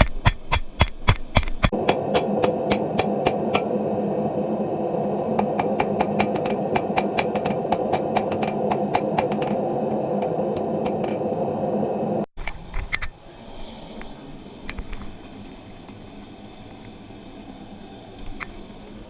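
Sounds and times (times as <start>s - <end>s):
forge roaring: 1.7s - 12.3s
hammer tapping on anvil: 5.4s - 9.6s.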